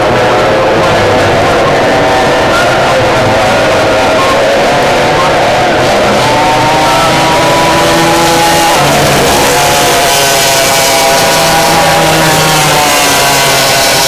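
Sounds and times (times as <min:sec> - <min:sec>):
powerboat engines at high revs: 0:00.0 - 0:14.0.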